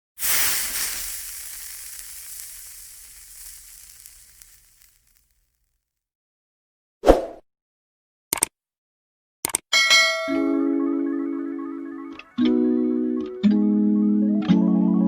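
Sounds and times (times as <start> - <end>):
hissing crackling noise: 0.0 - 5.5.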